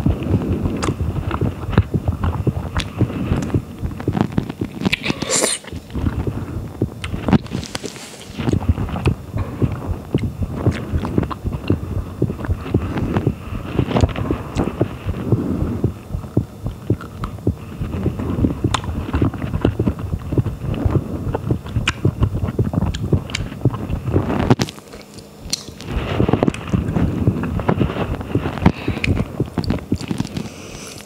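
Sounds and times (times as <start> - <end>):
chewing and biting strawberry: 0.0 - 31.0
small sharp mouth clicks: 0.8 - 3.5, 4.2 - 5.8, 18.7 - 19.7, 21.7 - 22.3, 24.6 - 26.7, 28.6 - 31.0.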